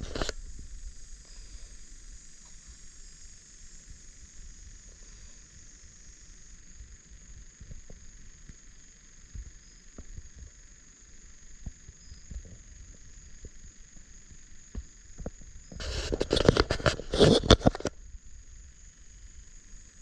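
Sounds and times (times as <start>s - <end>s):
microphone handling rustle: 0.0s - 1.0s, 14.8s - 18.0s
faint high hiss: 0.0s - 16.3s.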